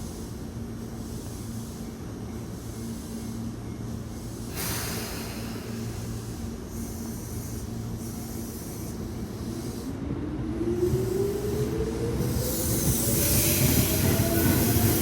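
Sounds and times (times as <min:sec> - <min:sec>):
air hissing: 0:04.2 - 0:10.0.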